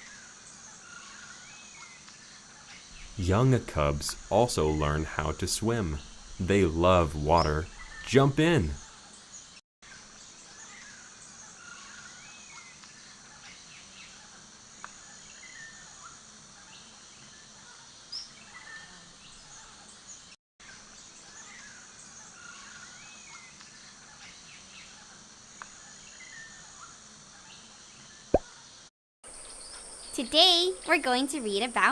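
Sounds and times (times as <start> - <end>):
high insect hum: 0.1 - 9.4
bird chirps: 3.0 - 8.8.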